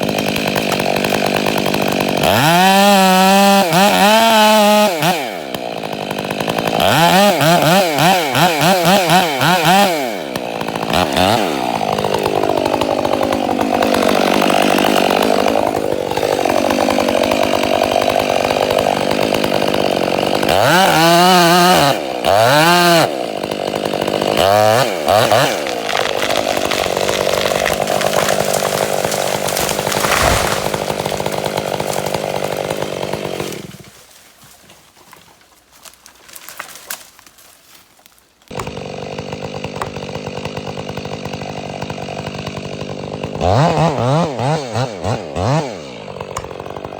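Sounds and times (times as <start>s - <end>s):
chainsaw revving: 0.0s - 34.0s, 38.5s - 46.9s
chainsaw cutting wood: 0.0s - 37.5s, 38.1s - 46.9s.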